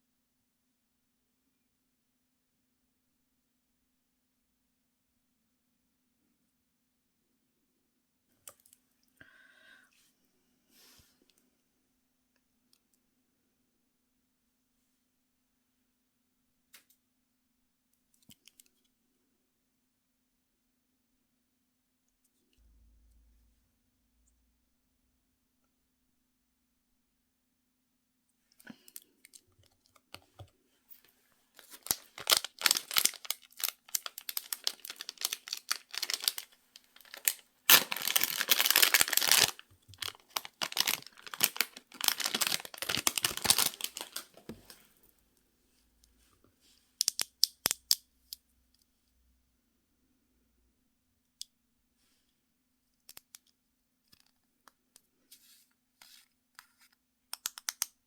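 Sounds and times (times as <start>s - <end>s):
packaging tearing and crinkling: 31.6s - 44.5s.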